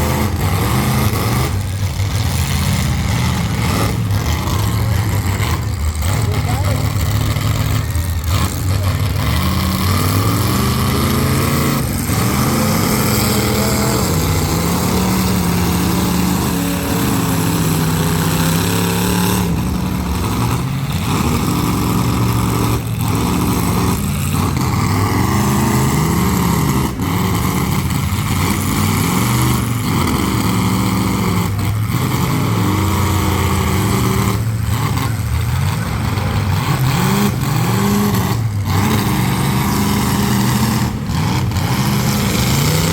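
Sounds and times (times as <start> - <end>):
car engines revving: 0.0 - 42.9.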